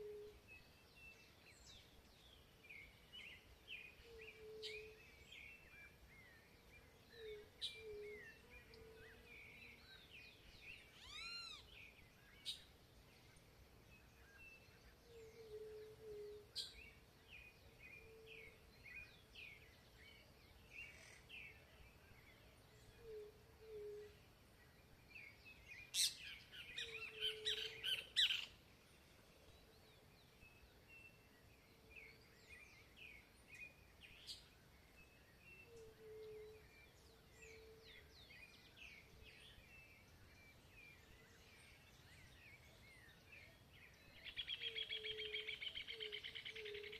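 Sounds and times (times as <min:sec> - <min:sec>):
bird chirps: 0:02.7 - 0:12.7, 0:25.2 - 0:28.6, 0:32.0 - 0:46.9.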